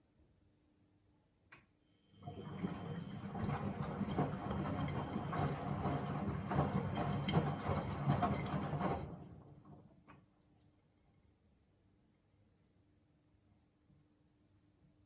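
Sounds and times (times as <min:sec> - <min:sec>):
faint click: 0:01.5 - 0:01.8
washing machine drum tumbling laundry: 0:02.2 - 0:10.1.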